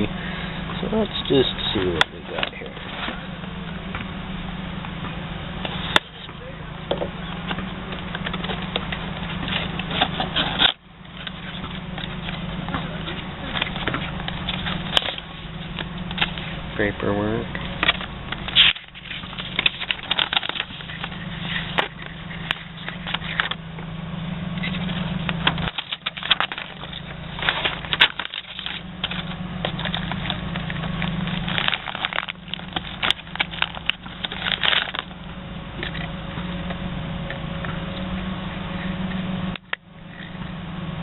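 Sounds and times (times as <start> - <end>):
steady low hum: 0.0 - 41.0
packaging crinkling: 17.8 - 23.6, 24.6 - 35.3.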